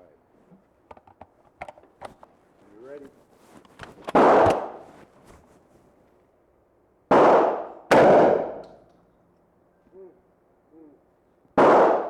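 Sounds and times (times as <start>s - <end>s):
gunshots with echo: 4.2s - 4.8s, 7.1s - 8.6s, 11.6s - 12.0s.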